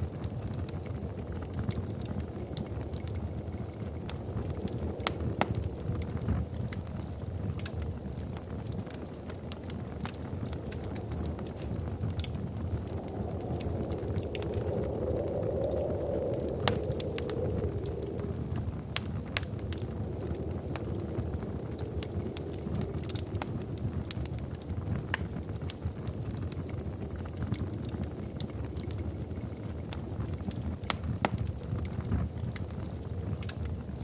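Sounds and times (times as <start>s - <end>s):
low rumble of flames: 0.0s - 34.0s
wood fire crackling and popping: 0.0s - 34.0s
soft hiss: 0.4s - 25.6s.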